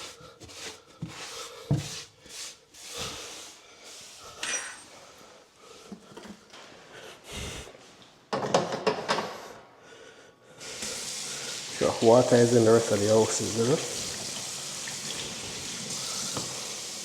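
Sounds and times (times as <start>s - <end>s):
objects knocking and clicking: 8.3s - 9.3s.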